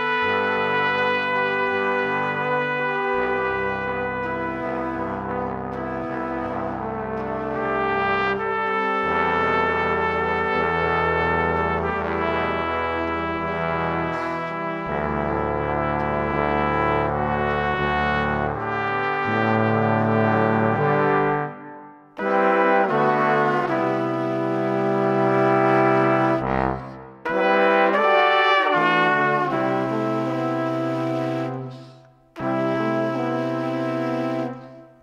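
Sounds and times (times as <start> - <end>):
slow brass ensemble chords: 0.0 - 35.0.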